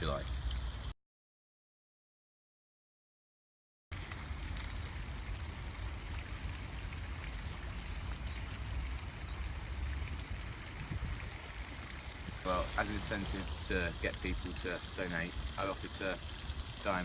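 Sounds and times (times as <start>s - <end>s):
wind buffeting microphone: 7.0s - 14.1s.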